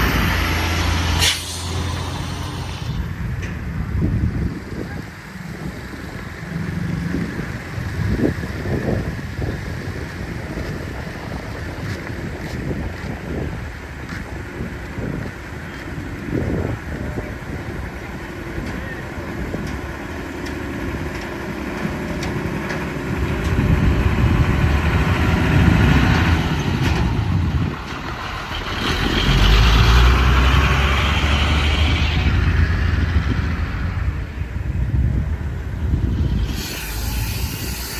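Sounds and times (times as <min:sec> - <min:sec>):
heavy diesel engines rumbling: 0:00.0 - 0:37.9
hiss: 0:01.1 - 0:03.1, 0:36.2 - 0:37.9.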